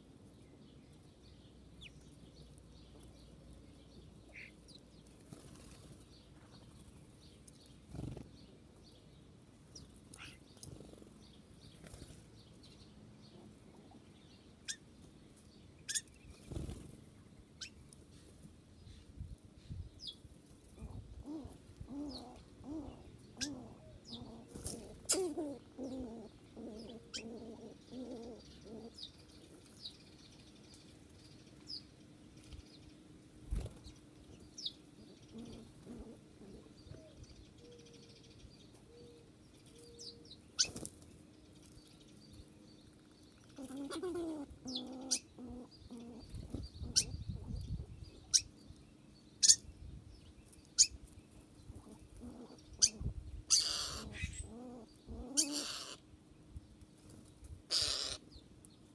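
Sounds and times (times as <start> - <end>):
birds chirping: 0.0 - 58.9
low warbling bird calls: 15.8 - 16.9, 18.9 - 30.0, 33.6 - 40.9, 43.0 - 56.2, 57.7 - 58.5.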